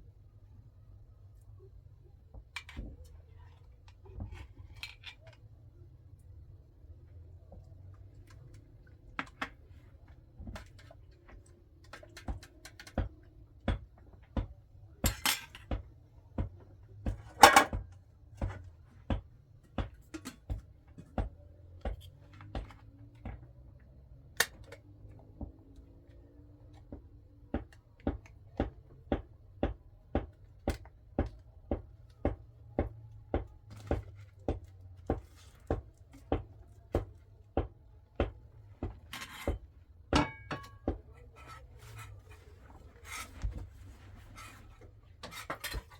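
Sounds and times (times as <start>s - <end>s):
scrape or rustle: 41.4s - 45.9s.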